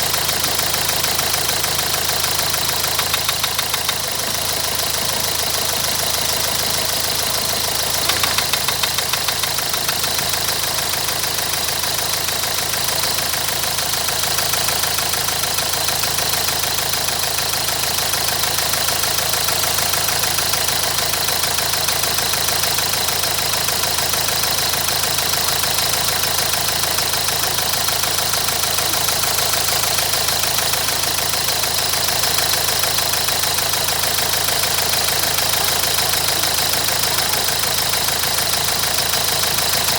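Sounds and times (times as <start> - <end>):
diesel engine idling clatter: 0.0 - 39.9
engine knocking: 0.0 - 39.9.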